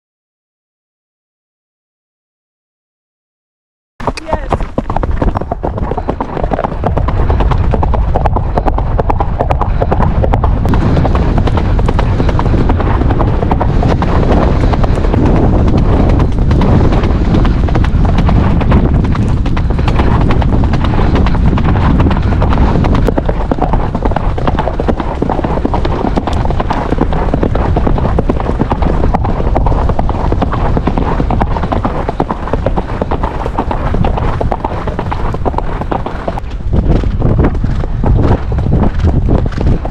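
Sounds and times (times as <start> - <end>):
horse hoofbeats cantering: 4.0 - 39.9
low rumble: 6.6 - 25.4.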